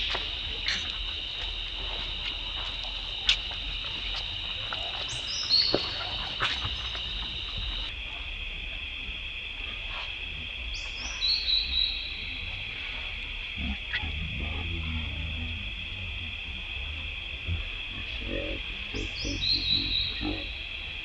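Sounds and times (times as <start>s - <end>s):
high-pitched drone: 0.0s - 20.9s
high animal calls falling in pitch: 4.5s - 7.9s.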